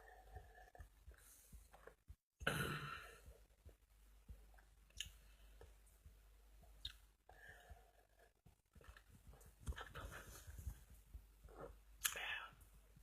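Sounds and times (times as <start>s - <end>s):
mouth clicks: 12.0s - 12.3s.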